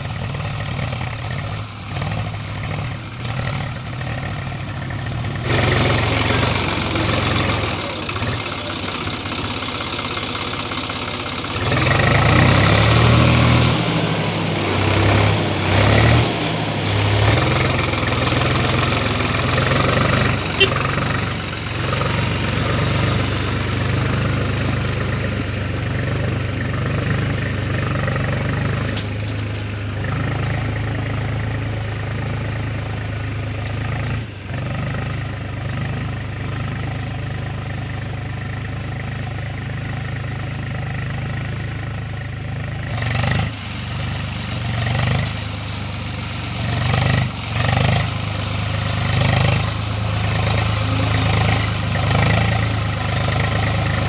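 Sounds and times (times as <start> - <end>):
tractor engine humming: 0.0 - 54.0.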